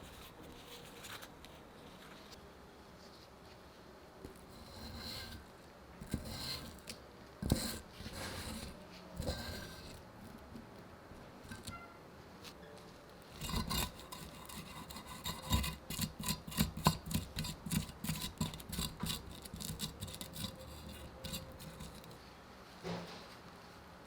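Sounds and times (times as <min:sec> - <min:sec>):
hand tool rasping against metal: 0:04.5 - 0:05.4, 0:06.0 - 0:10.0, 0:13.4 - 0:22.2.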